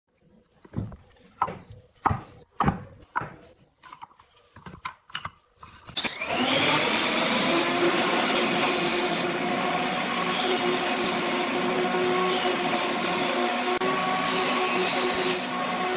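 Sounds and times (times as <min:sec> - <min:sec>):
electric power tool whining: 0:05.9 - 0:15.9.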